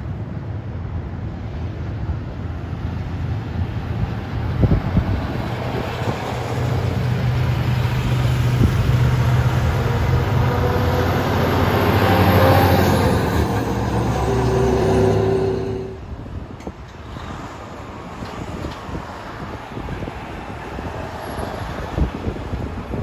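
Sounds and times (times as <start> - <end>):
diesel truck engine passing: 3.7 - 16.3.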